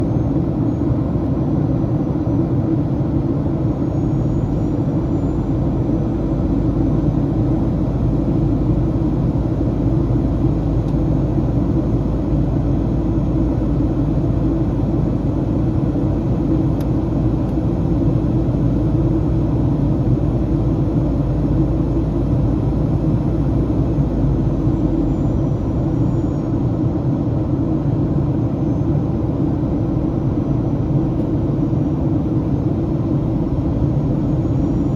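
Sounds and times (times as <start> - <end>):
airplane cabin rumble: 0.0 - 34.9.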